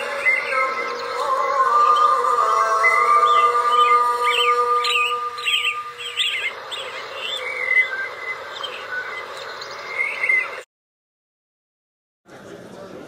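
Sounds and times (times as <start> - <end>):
held musical note: 0.0 - 7.1
birds chirping: 0.0 - 10.6.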